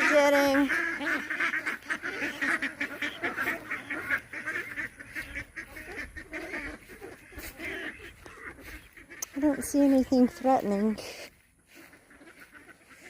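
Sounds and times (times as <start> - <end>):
ducks quacking rapidly: 0.0 - 13.0.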